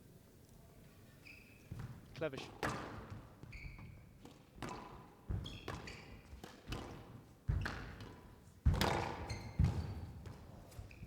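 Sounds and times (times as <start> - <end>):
court shoes squeaking: 0.8 - 6.4, 8.8 - 11.0
squash ball hits: 8.7 - 10.0.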